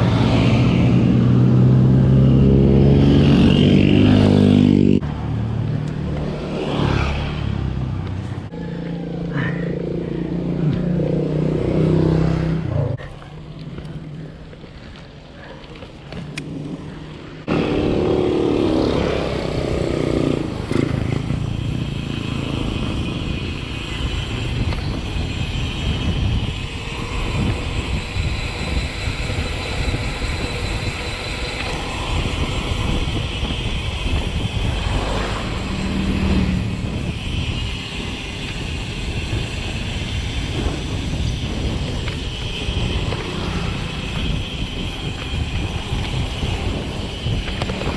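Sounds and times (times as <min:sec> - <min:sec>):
bicycle rolling on road: 0:00.0 - 0:47.9
motor vehicle engine: 0:00.0 - 0:47.9
wind on microphone: 0:16.0 - 0:47.9.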